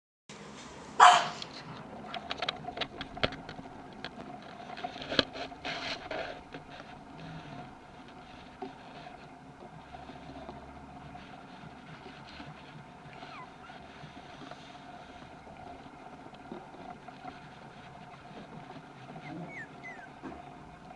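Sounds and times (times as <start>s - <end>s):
faint steady hum: 0.3s - 20.9s
puppy barking: 1.0s - 1.4s, 19.2s - 20.1s
light clicks and knocks: 1.4s - 7.0s.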